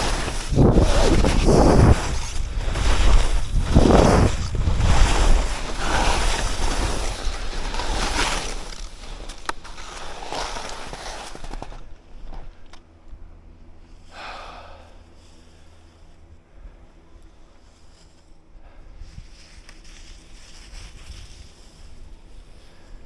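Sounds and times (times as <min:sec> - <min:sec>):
skis scraping through snow: 0:00.0 - 0:12.6, 0:19.1 - 0:22.8
wind rumbling on microphone: 0:00.0 - 0:12.6.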